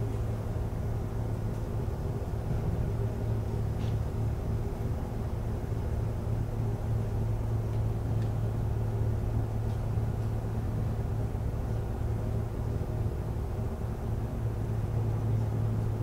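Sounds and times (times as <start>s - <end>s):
train car low hum: 0.0s - 16.0s.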